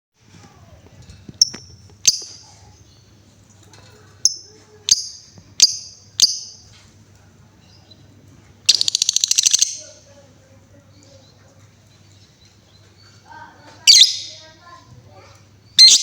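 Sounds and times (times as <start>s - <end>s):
lovebird high chirps: 1.4s - 3.0s, 4.2s - 6.7s, 8.7s - 10.0s, 13.9s - 14.4s, 15.7s - 16.0s
lovebird rapid ticking trill: 4.3s - 6.6s, 8.7s - 9.8s.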